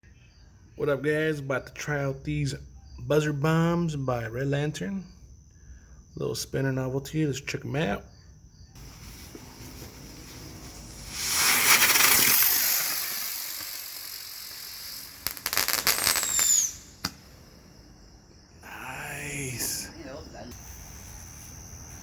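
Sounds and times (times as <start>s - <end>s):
sharp firework crack: 8.8s - 19.8s, 20.5s - 22.0s
firework crackling: 8.8s - 22.0s
firework rushing hiss: 8.8s - 22.0s
short falling whistle: 11.0s - 17.2s.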